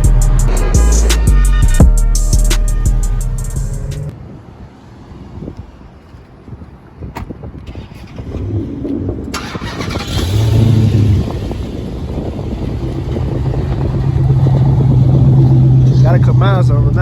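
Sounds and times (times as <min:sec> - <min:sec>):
car engine running: 0:10.0 - 0:17.0.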